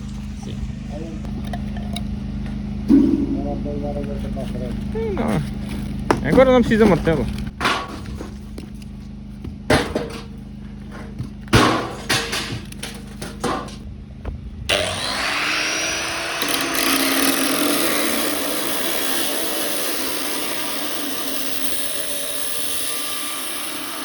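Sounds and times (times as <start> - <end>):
power tool whining: 0.0 - 13.8, 14.6 - 24.0
sharp knocks: 2.9 - 3.6, 9.6 - 10.4, 11.0 - 13.8.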